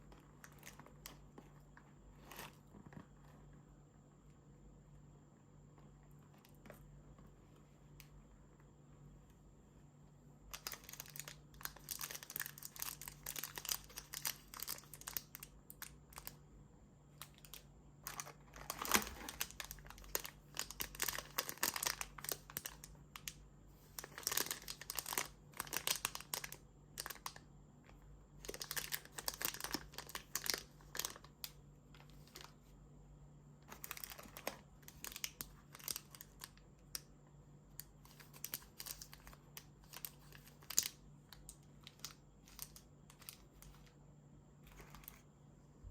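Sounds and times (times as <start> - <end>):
chocolate wrappers crinkling: 10.5 - 16.4, 17.2 - 27.4, 28.4 - 32.6, 33.6 - 37.1, 37.8 - 44.0.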